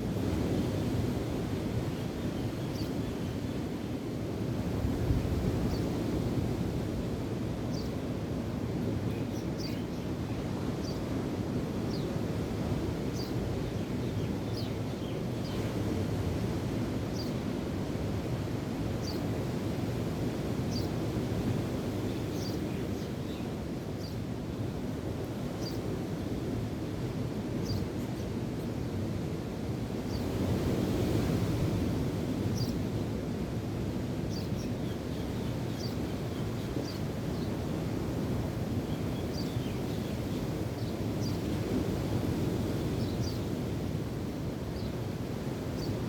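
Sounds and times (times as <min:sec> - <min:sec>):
wind: 0:00.0 - 0:46.0
small birds chirping: 0:34.3 - 0:37.5.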